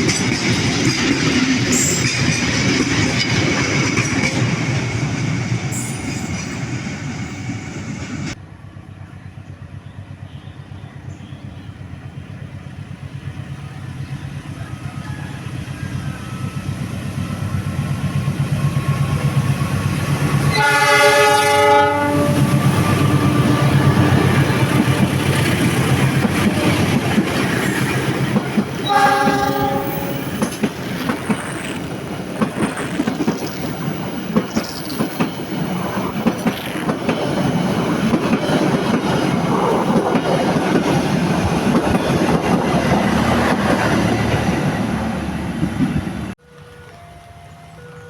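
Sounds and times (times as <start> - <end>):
train wheels clattering: 0.0 - 8.3, 18.6 - 44.8
locomotive horn blast: 20.5 - 24.8, 28.8 - 30.4.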